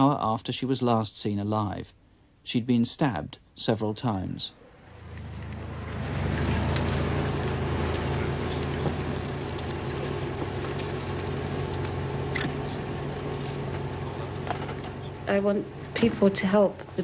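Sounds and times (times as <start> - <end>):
vehicle engines idling: 4.6 - 17.0.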